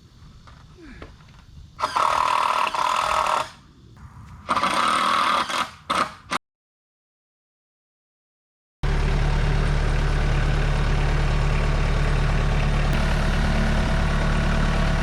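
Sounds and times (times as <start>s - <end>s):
engine idling: 8.8s - 15.0s.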